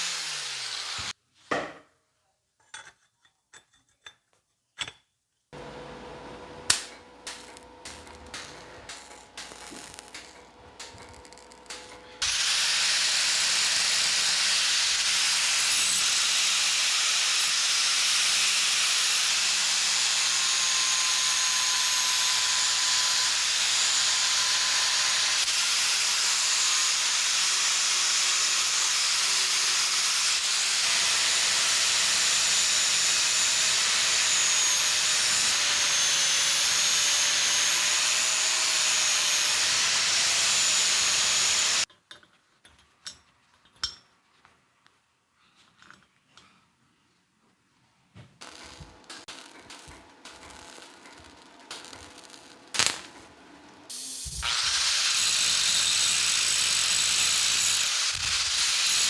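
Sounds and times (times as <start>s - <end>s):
power tool hissing and whining: 0.0s - 1.2s, 5.6s - 41.9s, 53.9s - 59.0s.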